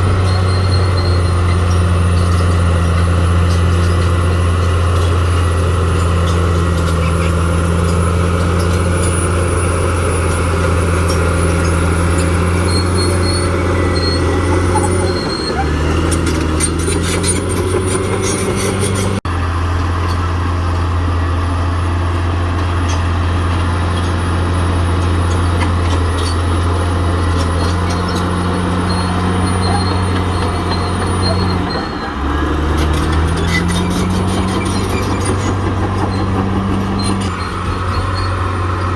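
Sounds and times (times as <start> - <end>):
bulldozer diesel engine running: 0.0 - 38.9
metallic clatter of tracks: 27.2 - 38.9.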